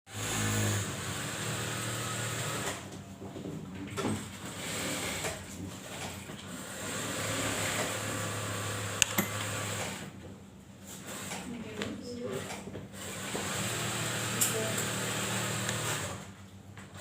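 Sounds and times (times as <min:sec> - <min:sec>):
sewing machine running: 0:00.1 - 0:02.8, 0:04.5 - 0:10.1, 0:12.3 - 0:16.3.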